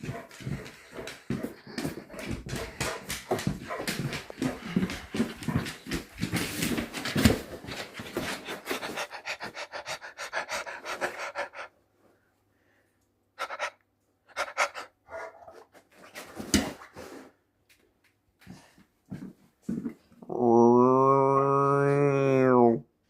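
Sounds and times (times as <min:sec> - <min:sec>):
dog panting: 0:00.0 - 0:11.8, 0:13.4 - 0:15.6.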